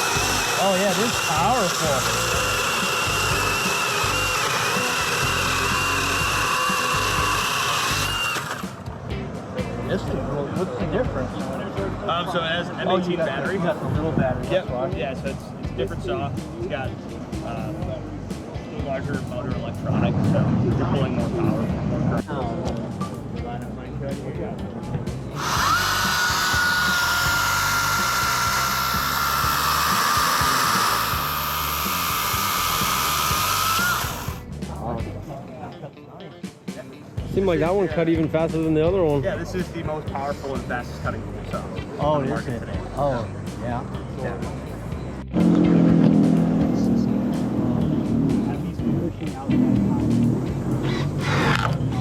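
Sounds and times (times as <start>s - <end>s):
pruning saw cutting wood: 0.0s - 8.9s, 25.4s - 34.5s, 50.6s - 51.9s.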